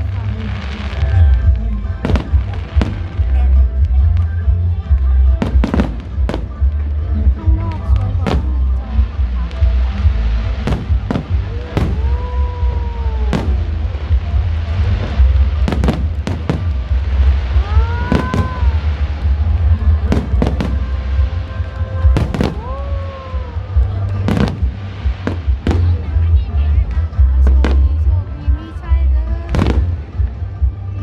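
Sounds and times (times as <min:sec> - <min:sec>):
fireworks banging: 0:00.0 - 0:31.0
low rumble: 0:00.0 - 0:31.0
fireworks whistling: 0:09.6 - 0:26.2.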